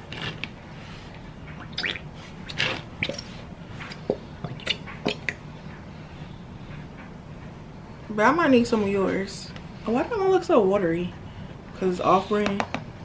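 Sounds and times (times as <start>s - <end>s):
glue bottle squelching: 1.8s - 3.4s.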